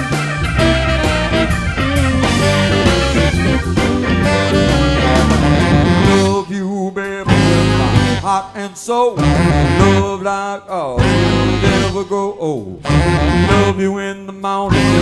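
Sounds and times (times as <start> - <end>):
electric guitar: 0.0 - 6.5, 7.2 - 8.3, 11.0 - 12.0, 14.7 - 15.0
soul band playing: 0.0 - 8.6, 9.2 - 10.3, 11.0 - 14.0, 14.7 - 15.0.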